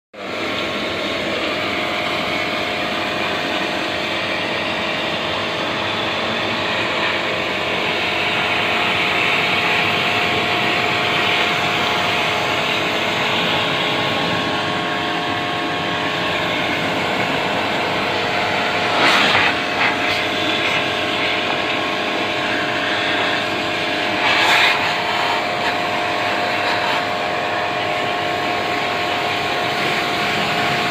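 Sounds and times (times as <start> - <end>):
pressure washer motor whining: 0.2 - 30.9
hissing rush of spray: 2.8 - 30.9.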